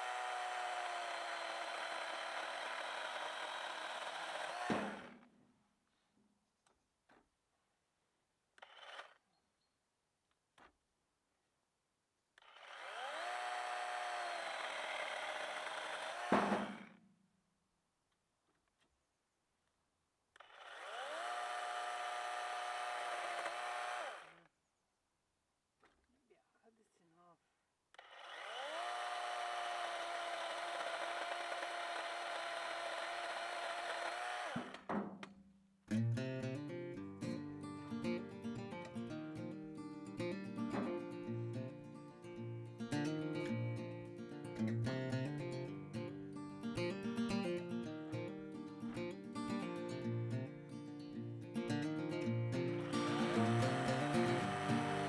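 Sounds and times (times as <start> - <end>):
electric chainsaw motor whine: 0.0 - 5.3, 8.6 - 9.2, 12.4 - 17.0, 20.4 - 24.4, 28.0 - 34.9, 52.6 - 55.0
knock: 16.3 - 16.7, 34.7 - 35.3
acoustic guitar music: 35.9 - 55.0.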